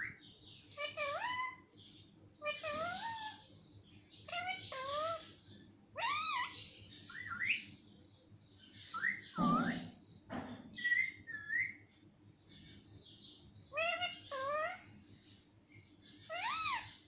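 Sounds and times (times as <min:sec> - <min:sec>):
parrot whistling calls: 0:09.0 - 0:10.0.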